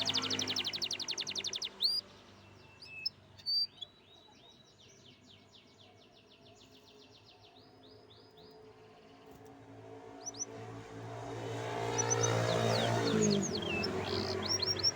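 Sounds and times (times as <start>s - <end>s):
canary singing: 0.0s - 4.1s, 10.2s - 10.6s, 11.8s - 14.9s.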